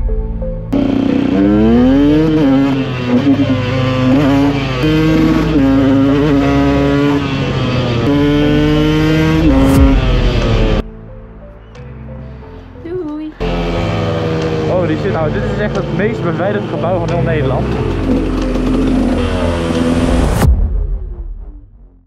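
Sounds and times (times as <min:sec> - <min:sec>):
dirt bike engine accelerating: 0:00.6 - 0:10.8, 0:13.4 - 0:20.5.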